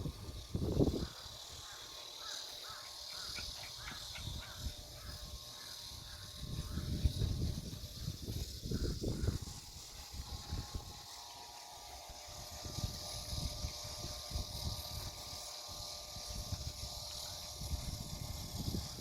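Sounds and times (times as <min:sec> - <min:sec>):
wind buffeting microphone: 0:00.0 - 0:01.2, 0:03.9 - 0:11.1, 0:16.2 - 0:19.0
steady high hiss: 0:00.0 - 0:19.0.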